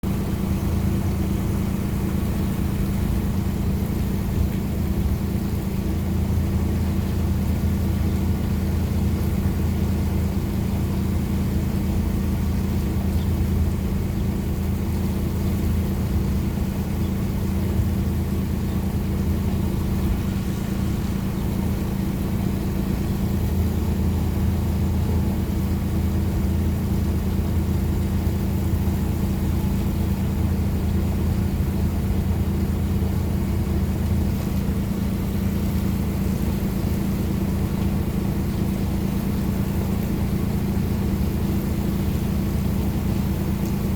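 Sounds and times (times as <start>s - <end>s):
large engine running steadily: 0.0s - 43.9s.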